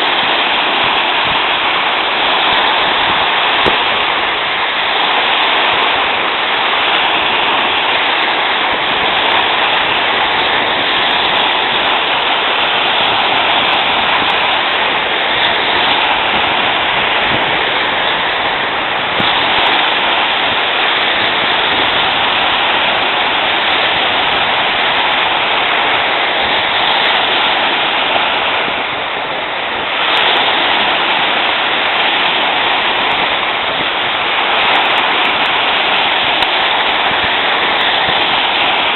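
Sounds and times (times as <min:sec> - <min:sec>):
wind rushing: 0:00.0 - 0:38.9.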